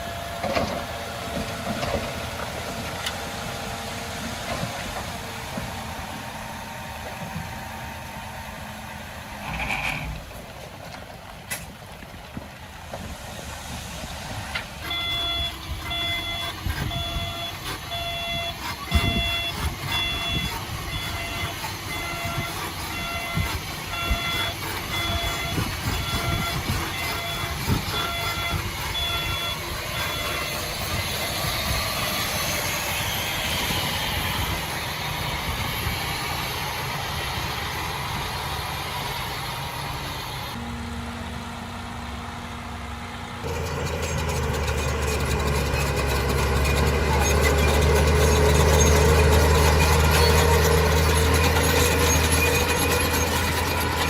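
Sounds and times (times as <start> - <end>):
diesel construction machine running: 0.0 - 54.0
reversing alarm beeping: 14.8 - 34.4.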